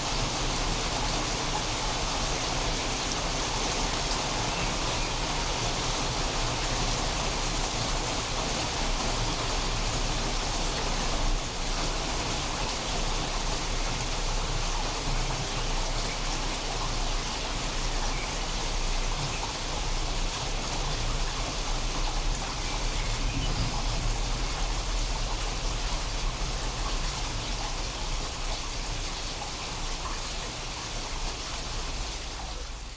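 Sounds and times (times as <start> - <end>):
rain falling: 0.0 - 32.9
deep thunder rumble: 22.2 - 28.5.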